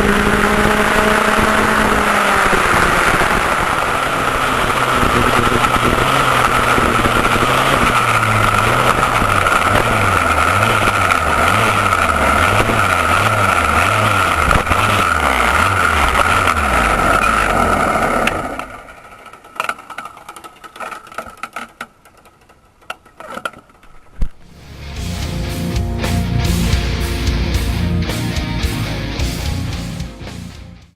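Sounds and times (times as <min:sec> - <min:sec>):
two-stroke kart engine running: 0:00.0 - 0:30.8
clicks and rattles: 0:18.6 - 0:24.3.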